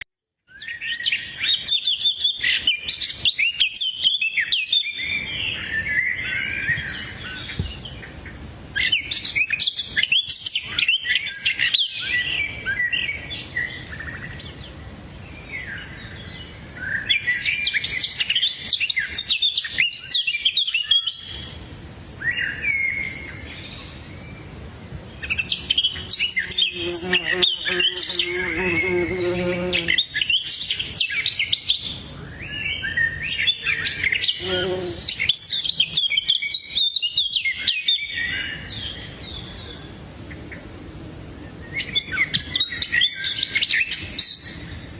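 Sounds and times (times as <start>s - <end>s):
small birds chirping: 0.0s - 40.7s, 41.4s - 44.9s
low buzzing: 26.5s - 30.1s.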